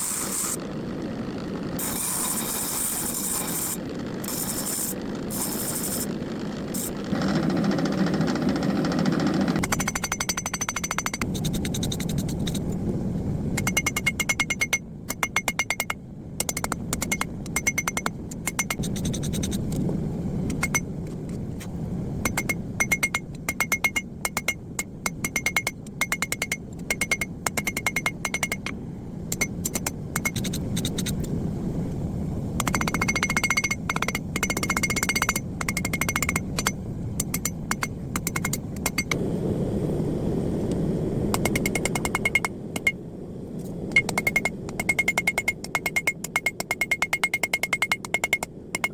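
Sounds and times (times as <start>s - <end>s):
low rumble: 39.0s - 45.1s.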